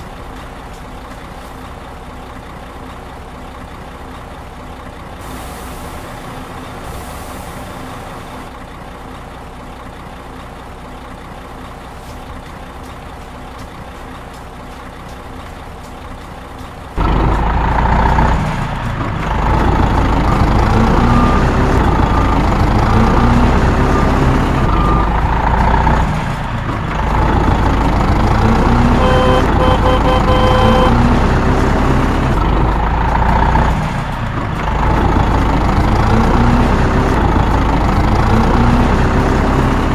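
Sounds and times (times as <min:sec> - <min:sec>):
truck engine running: 0:00.0 - 0:39.9
loud truck engine revving: 0:17.0 - 0:39.9
short beeps: 0:29.0 - 0:31.0.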